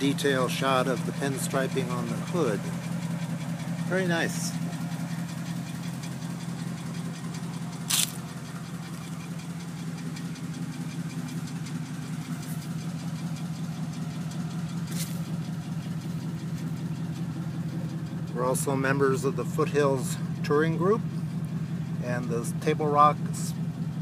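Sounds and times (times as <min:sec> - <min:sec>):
car engine idling: 0:00.0 - 0:24.0
sharp click: 0:07.9 - 0:08.2.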